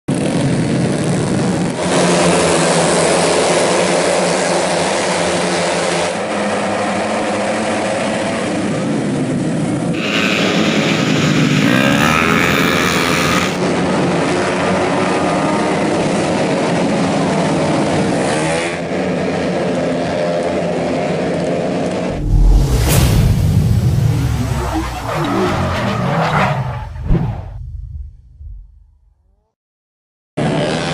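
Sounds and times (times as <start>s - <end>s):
scooter engines revving past: 9.9s - 13.8s.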